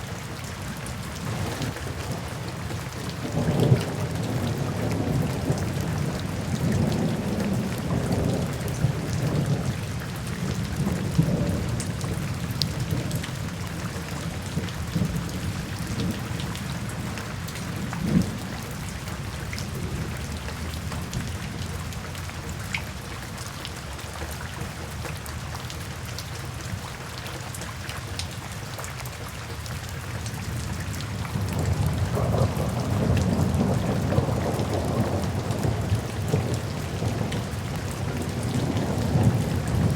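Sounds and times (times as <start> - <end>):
rain on foliage: 0.0 - 39.9
rolling thunder: 31.3 - 39.9.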